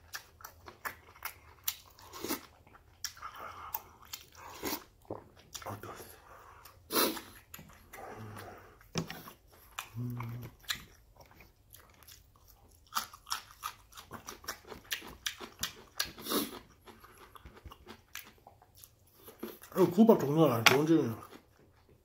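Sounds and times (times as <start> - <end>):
crunching and chewing: 0.0 - 22.0
person humming: 9.9 - 10.5.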